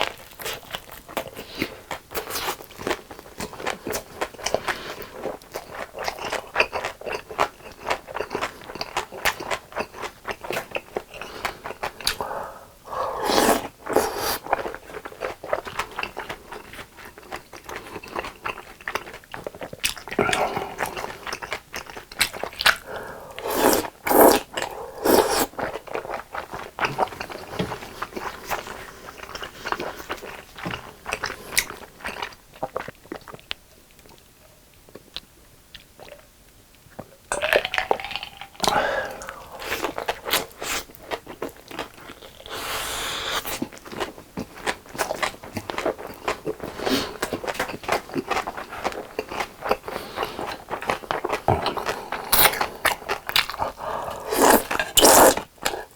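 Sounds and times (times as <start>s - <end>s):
biting and chewing food: 37.0s - 55.9s.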